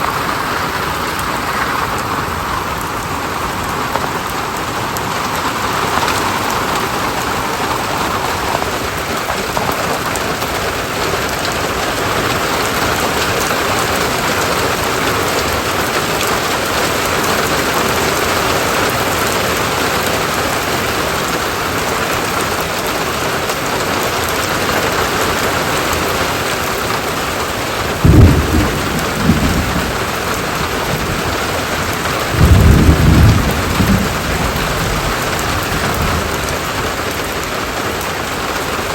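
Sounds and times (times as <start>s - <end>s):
steady rain falling: 0.0s - 38.9s
low rumbles of thunder: 27.9s - 37.8s.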